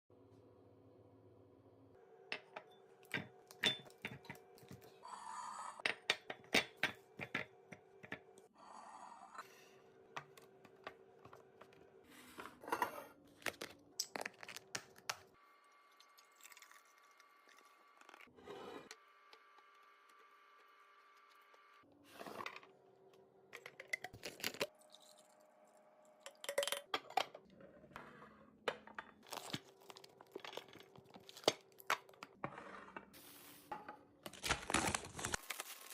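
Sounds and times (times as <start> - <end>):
packaging crinkling: 34.3 - 35.9.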